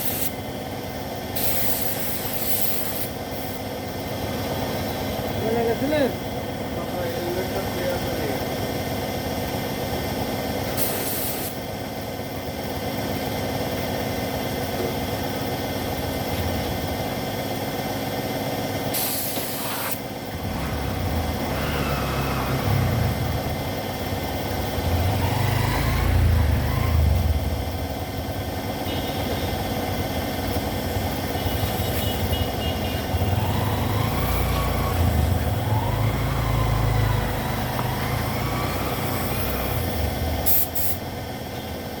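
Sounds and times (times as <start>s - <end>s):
compressed air hissing blasts: 0.0s - 0.4s, 1.3s - 3.6s, 10.7s - 11.6s, 18.9s - 20.2s, 39.0s - 41.1s
steady machine hum: 20.0s - 42.0s
vehicle engine rumble: 20.0s - 42.0s.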